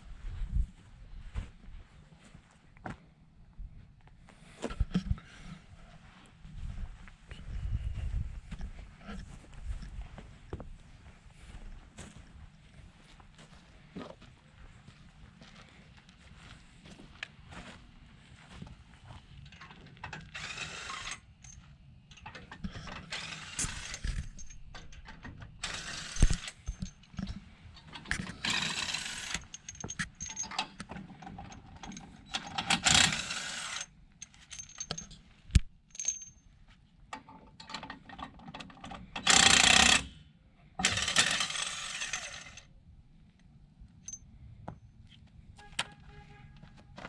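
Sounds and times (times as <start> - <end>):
ratcheting and clicking metal: 19.5 - 35.2, 37.2 - 40.2, 40.8 - 42.7.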